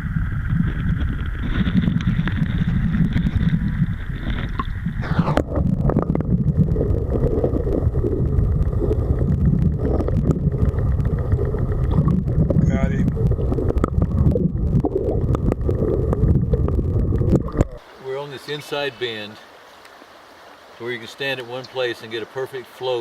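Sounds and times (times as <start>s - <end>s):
wind buffeting microphone: 0.0s - 17.8s
rushing river: 17.5s - 23.0s.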